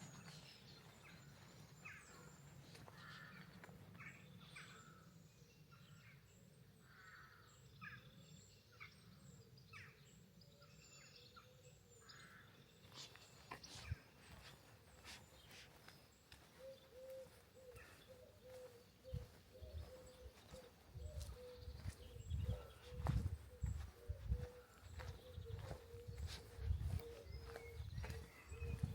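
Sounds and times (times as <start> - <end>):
birds chirping: 0.0 - 28.9.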